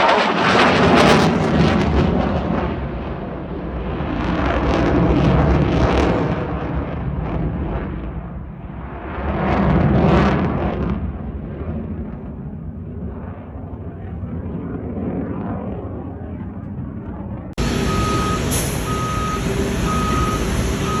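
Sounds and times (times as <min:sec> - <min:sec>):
jet engine running loud: 0:00.0 - 0:21.0
vehicle reversing alarm beeping: 0:17.6 - 0:21.0.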